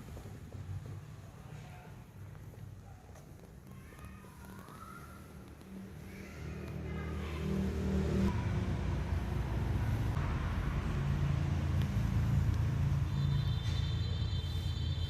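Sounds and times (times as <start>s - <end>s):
road noise: 0.0s - 15.0s
vehicle engine hum: 3.8s - 15.0s.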